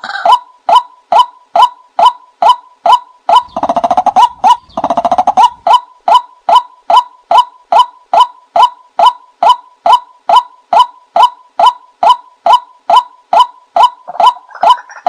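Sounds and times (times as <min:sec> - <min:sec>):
bird fast rattling call: 0:02.4 - 0:06.2.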